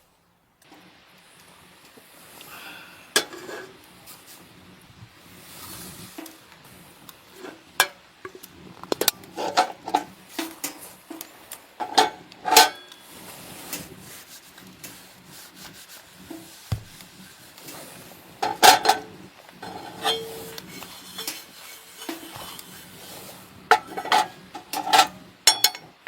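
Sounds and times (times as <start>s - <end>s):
hard objects clinking and knocking: 23.7s - 26.0s.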